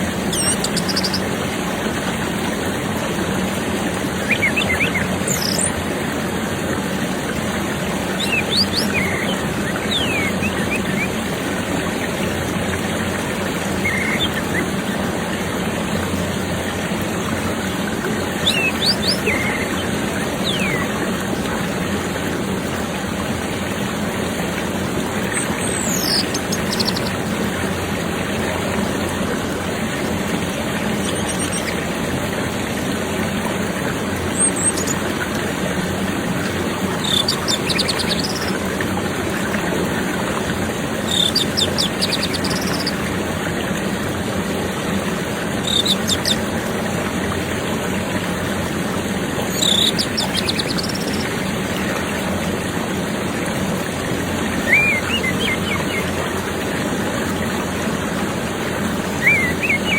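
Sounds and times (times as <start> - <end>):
flowing water: 0.0 - 59.9
lower bird call: 8.1 - 11.2, 18.4 - 20.9, 37.0 - 38.6, 49.6 - 51.3, 54.6 - 56.2, 59.1 - 59.9
thrush singing: 18.4 - 20.9, 54.6 - 56.2, 59.1 - 59.9.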